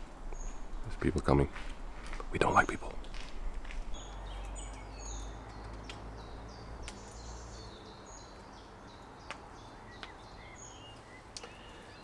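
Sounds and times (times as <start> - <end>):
low rumble: 0.0 - 4.0
songbirds chirping: 0.0 - 12.0
faint sharp clicks: 6.8 - 7.3.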